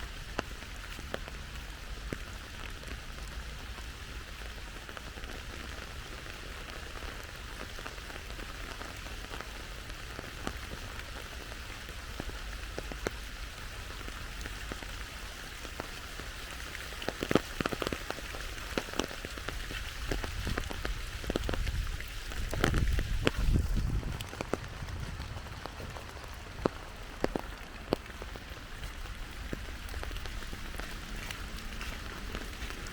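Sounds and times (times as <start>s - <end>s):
rain pattering on surfaces: 0.0s - 32.9s
low rumble: 21.6s - 27.0s.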